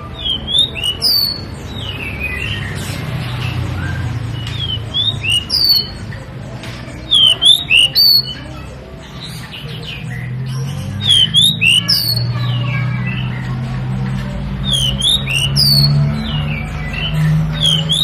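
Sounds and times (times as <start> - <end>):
bird singing whistled notes: 0.0 - 6.2, 7.1 - 8.5, 9.9 - 13.0, 14.6 - 18.0.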